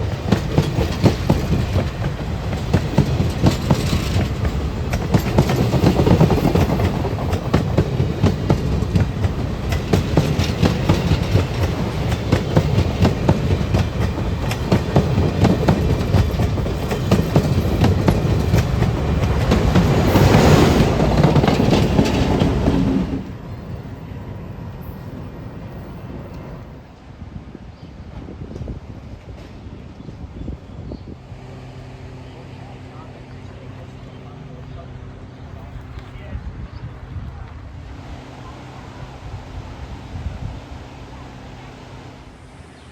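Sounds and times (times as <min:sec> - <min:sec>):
train wheels clattering over rail joints: 0:00.0 - 0:23.3
heavy train rumble: 0:00.0 - 0:42.9
rushing swell: 0:17.6 - 0:23.4.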